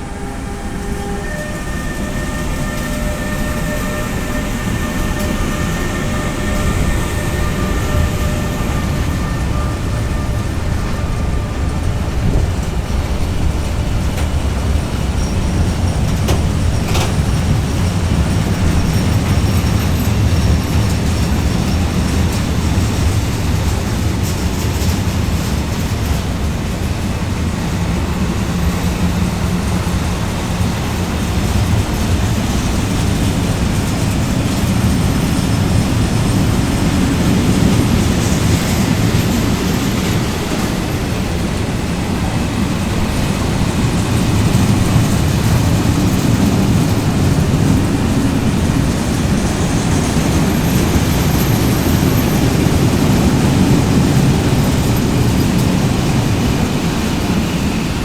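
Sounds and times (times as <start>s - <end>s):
thin steady tones: 0.0s - 13.8s
train wheels rumbling on rail: 0.0s - 58.0s.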